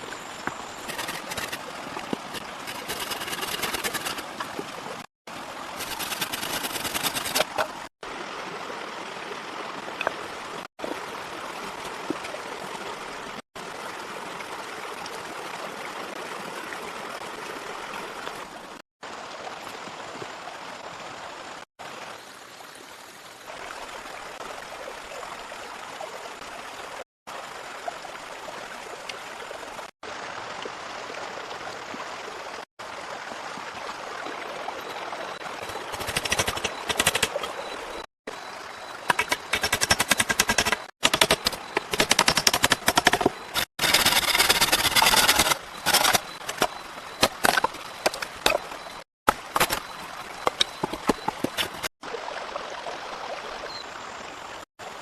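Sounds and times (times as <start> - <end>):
rushing water: 0.0 - 55.0
rapid clicks or scraping: 0.8 - 1.6, 2.2 - 4.6, 5.8 - 7.8, 35.7 - 37.6, 39.1 - 48.6.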